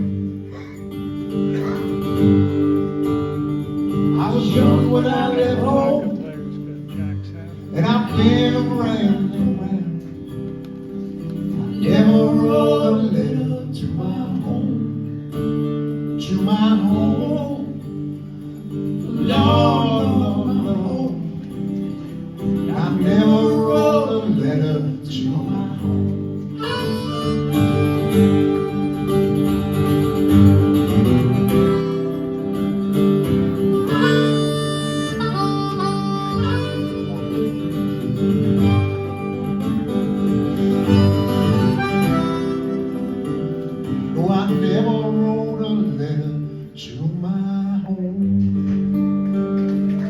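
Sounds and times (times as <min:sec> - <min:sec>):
strummed acoustic guitar: 0:00.0 - 0:50.0
person singing: 0:04.2 - 0:06.4
harmonica: 0:25.8 - 0:44.2.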